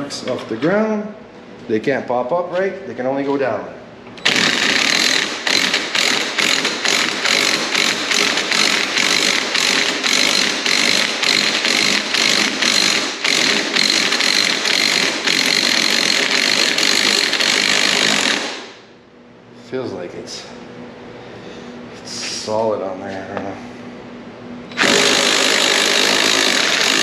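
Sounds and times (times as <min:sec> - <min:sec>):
power tool clattering: 0:04.2 - 0:18.8, 0:24.7 - 0:27.0.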